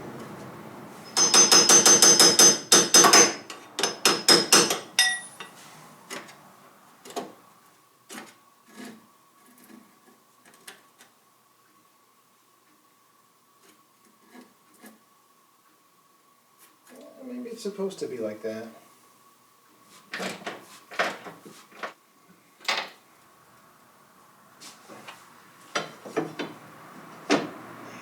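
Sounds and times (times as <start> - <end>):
hammer blows on metal: 1.0 - 5.6.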